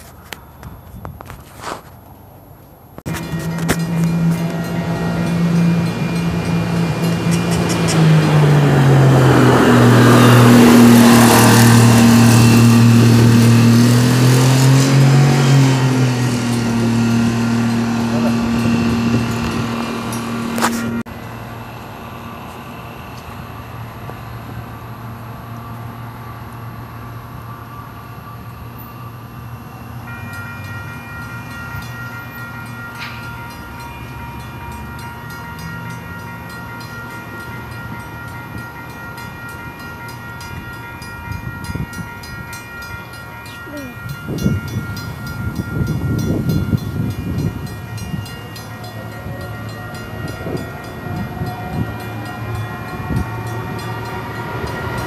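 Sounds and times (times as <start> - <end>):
train passing: 1.6 - 55.0
wheels clattering on track: 3.0 - 23.4
high ringing chord: 3.1 - 55.0.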